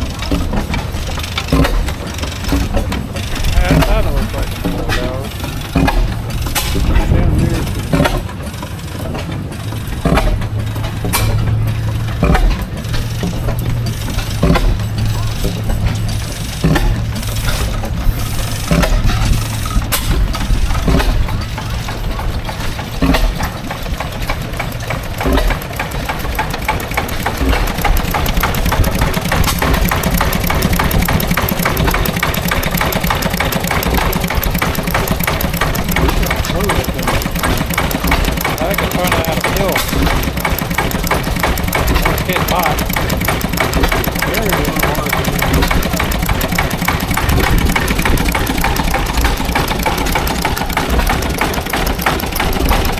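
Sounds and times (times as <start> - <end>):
engine idling: 0.0 - 52.9
sharp pops or clanks: 22.4 - 52.9.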